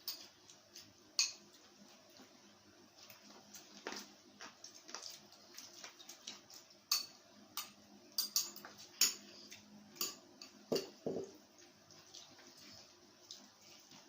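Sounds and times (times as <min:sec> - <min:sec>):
cutlery and dishes clinking: 0:06.9 - 0:09.3.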